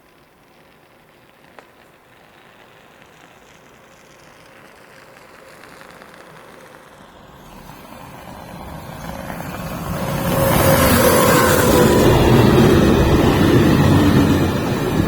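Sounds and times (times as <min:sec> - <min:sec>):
train approaching: 0:05.1 - 0:15.0.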